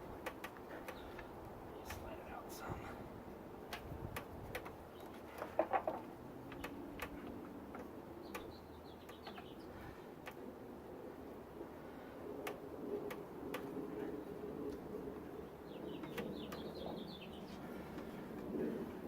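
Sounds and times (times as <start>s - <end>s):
light clicks and taps of hand work: 0.2s - 2.1s, 3.7s - 9.6s, 10.2s - 10.5s, 12.4s - 13.8s.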